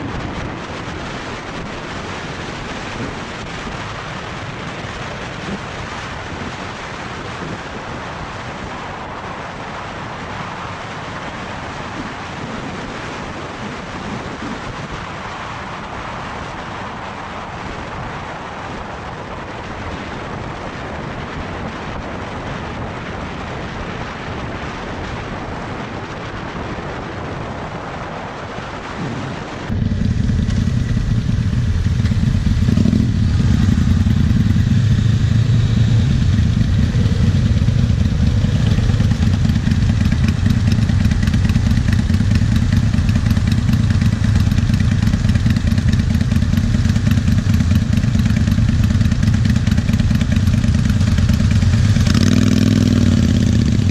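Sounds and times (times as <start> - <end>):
wind and road noise: 0.0 - 53.9
motorcycle engine: 29.6 - 53.9.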